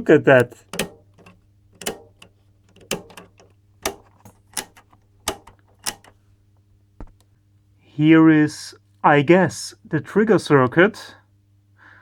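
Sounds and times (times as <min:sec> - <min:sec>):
power switch clicks: 0:00.0 - 0:06.4.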